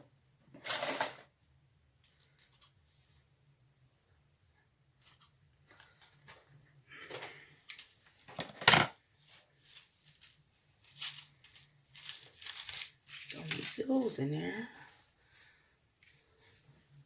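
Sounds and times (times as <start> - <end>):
packaging rustling: 9.2 - 14.2.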